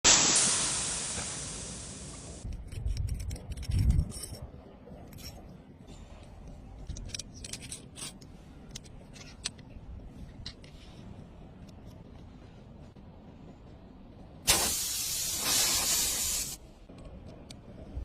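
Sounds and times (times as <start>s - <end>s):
hiss: 0.0s - 2.4s, 14.5s - 16.6s
small sharp clicks and scrapes: 2.4s - 5.5s, 6.2s - 12.3s.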